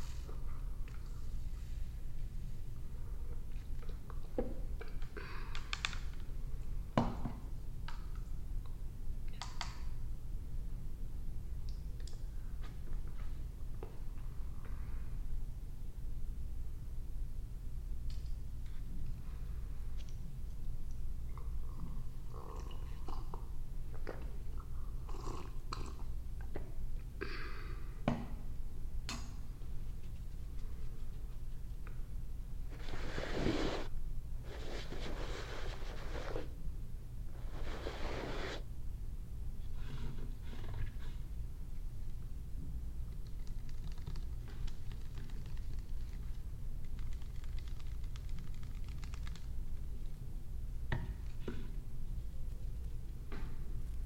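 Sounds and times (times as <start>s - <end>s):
low steady hum: 0.0s - 54.0s
brushing strokes: 32.7s - 36.5s, 37.4s - 38.6s.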